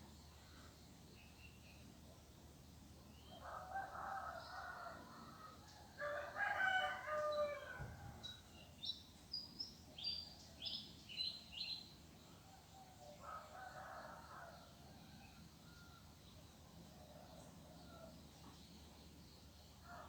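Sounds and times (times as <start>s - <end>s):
rooster crowing: 3.4s - 7.9s.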